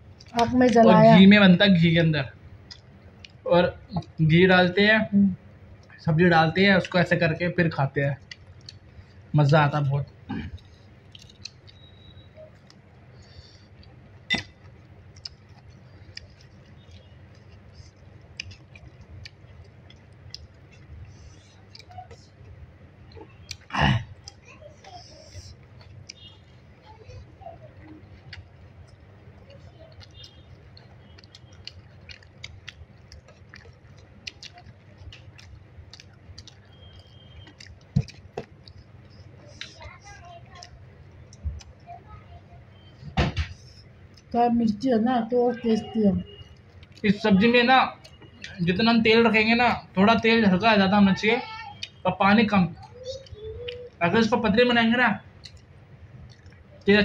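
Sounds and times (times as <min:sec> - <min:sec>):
chewing with wet mouth clicks: 0:02.6 - 0:04.2, 0:08.2 - 0:09.3, 0:10.0 - 0:42.0, 0:42.8 - 0:44.3, 0:46.3 - 0:47.2, 0:48.0 - 0:48.7, 0:51.7 - 0:52.0, 0:52.8 - 0:54.0, 0:55.2 - 0:56.9.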